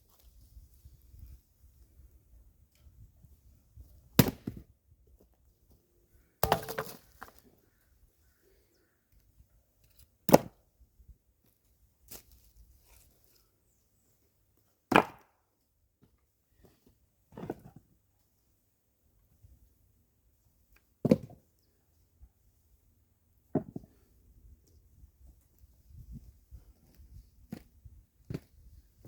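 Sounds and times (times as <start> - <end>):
axe chopping firewood: 4.2 - 4.6, 6.4 - 7.4, 10.3 - 10.6, 14.9 - 15.4.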